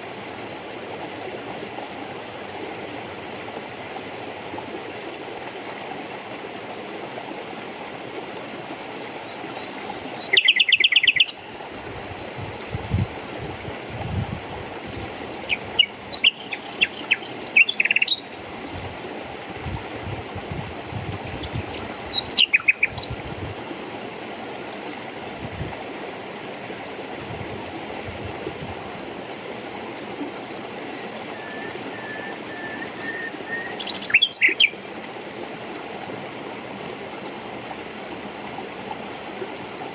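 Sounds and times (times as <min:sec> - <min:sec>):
running water: 0:00.0 - 0:39.9
songbirds trilling: 0:08.8 - 0:11.4, 0:15.2 - 0:18.4, 0:20.8 - 0:23.2, 0:31.2 - 0:34.9.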